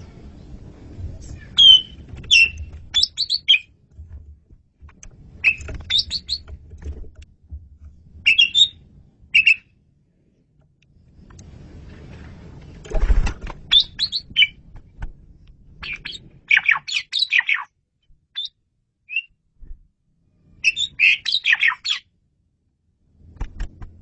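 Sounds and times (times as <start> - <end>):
low rumble: 0.0 - 3.0
bird singing whistled notes: 1.5 - 3.7, 5.4 - 6.4, 8.2 - 9.7, 13.7 - 14.6, 15.8 - 17.7, 18.4 - 19.4, 20.6 - 22.0.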